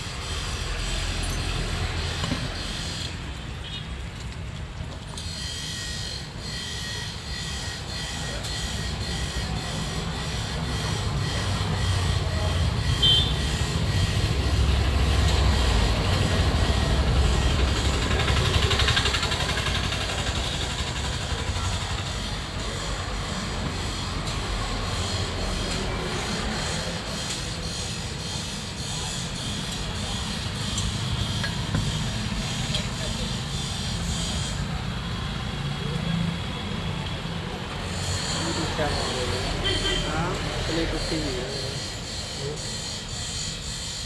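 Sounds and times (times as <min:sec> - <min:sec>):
vehicle engine and road rumble: 0:09.8 - 0:41.4.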